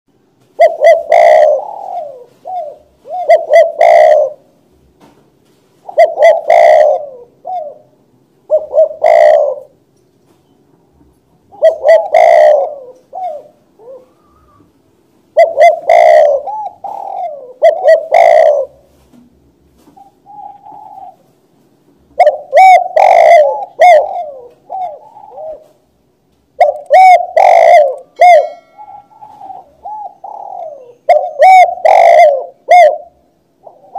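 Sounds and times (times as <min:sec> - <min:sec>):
dove cooing: 0:00.5 - 0:04.6, 0:05.8 - 0:09.8, 0:11.5 - 0:19.1, 0:19.8 - 0:21.5, 0:22.1 - 0:25.9, 0:26.6 - 0:33.9.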